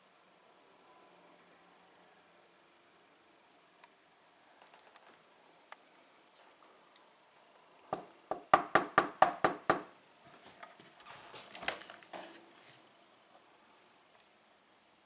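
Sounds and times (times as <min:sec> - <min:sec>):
rustling and crinkling: 0:04.6 - 0:05.2, 0:10.2 - 0:14.3.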